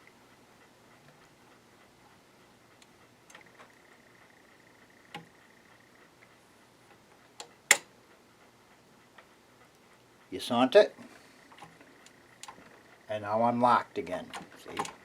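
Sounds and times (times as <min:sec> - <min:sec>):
part clicking into place: 0:07.4 - 0:07.9
sewing machine mechanism ticking: 0:11.5 - 0:15.0.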